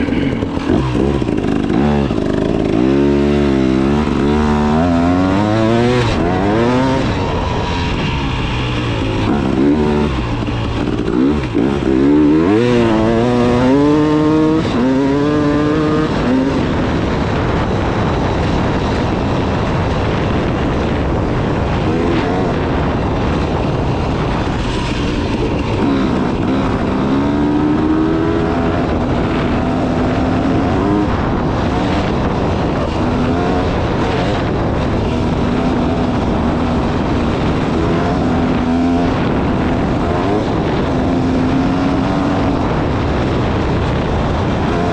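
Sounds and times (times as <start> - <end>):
dirt bike engine revving: 0.0 - 44.9
steady rushing noise: 0.0 - 44.9.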